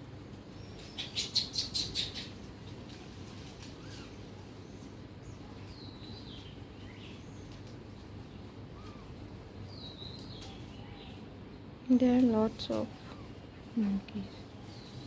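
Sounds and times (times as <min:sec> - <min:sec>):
outdoor background noise: 0:00.0 - 0:15.0
bird chirps: 0:00.5 - 0:02.4.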